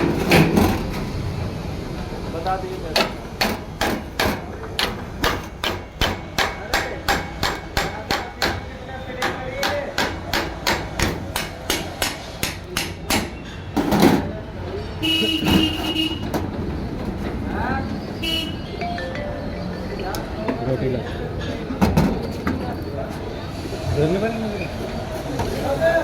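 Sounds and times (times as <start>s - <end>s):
short beep: 18.5s - 20.7s.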